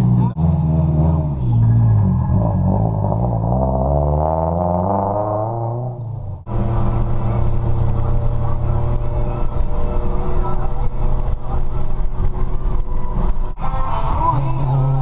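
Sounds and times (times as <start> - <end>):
car engine accelerating: 0.0 - 15.0
steady engine drone: 5.4 - 15.0.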